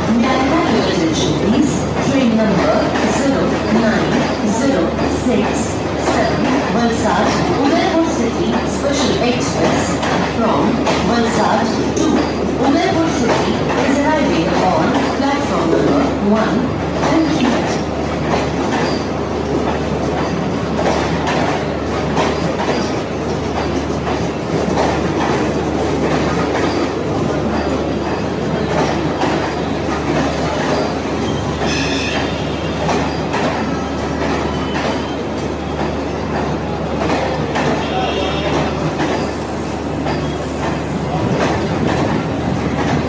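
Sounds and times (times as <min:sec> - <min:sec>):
train wagons rumbling: 0:00.0 - 0:43.0
wheels clacking over rail joints: 0:00.0 - 0:43.0
high wheel squeal: 0:31.2 - 0:35.3.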